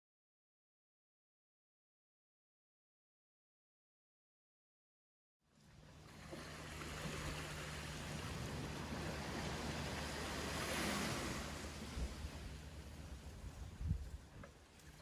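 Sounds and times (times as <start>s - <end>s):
steady low hum: 5.6s - 14.8s
ocean waves washing onto beach: 5.7s - 15.0s.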